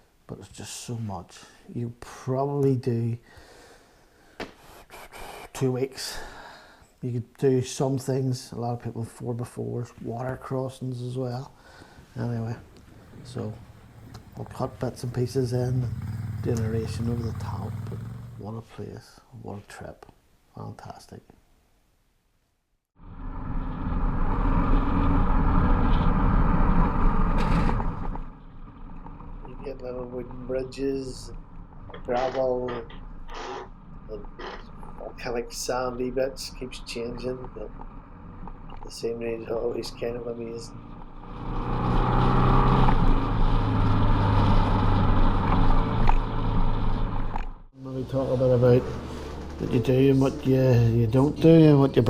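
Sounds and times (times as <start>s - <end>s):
motorbike engine running: 12.9s - 18.5s.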